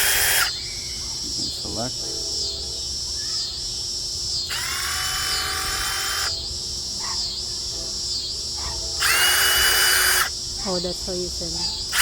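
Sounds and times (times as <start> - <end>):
impact driver motor whine: 0.0 - 0.8, 4.4 - 6.6, 9.0 - 10.4.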